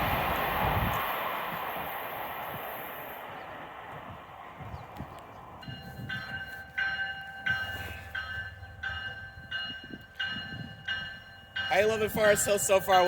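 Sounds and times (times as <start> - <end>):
faint low train rumble: 0.0 - 13.0
locomotive bell ringing: 5.6 - 13.0.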